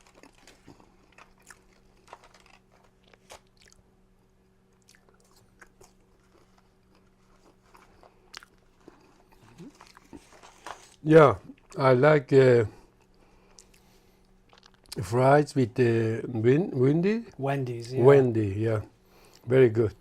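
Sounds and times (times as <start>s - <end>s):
chewing french fries: 0.0s - 11.8s, 12.9s - 15.0s
steady low hum: 0.0s - 20.0s.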